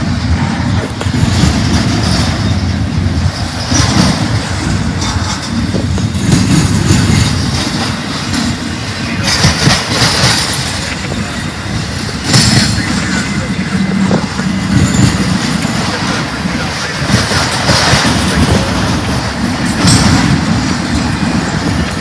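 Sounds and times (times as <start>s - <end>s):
freight train rumbling past: 0.0s - 22.0s
train wheels clattering and squealing: 0.0s - 22.0s.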